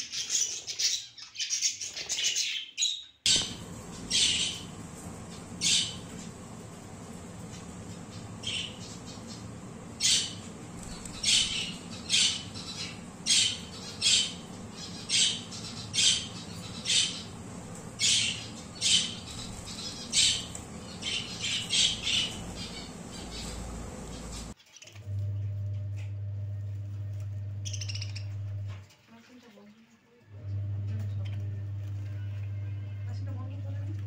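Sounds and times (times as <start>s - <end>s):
bird high-pitched calls: 0.0s - 4.8s, 5.4s - 6.2s, 7.6s - 24.6s, 27.6s - 28.4s.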